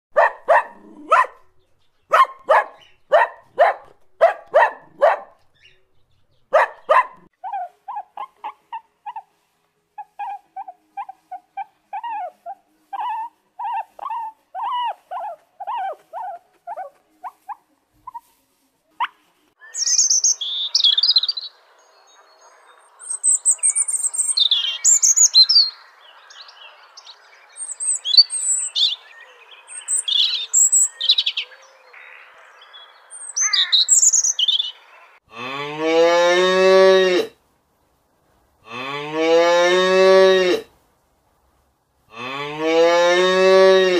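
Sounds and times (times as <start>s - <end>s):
puppy yapping: 0.2s - 1.4s, 2.1s - 5.4s, 6.5s - 9.3s, 10.0s - 18.2s
birds chirping: 0.2s - 7.3s, 19.6s - 35.2s.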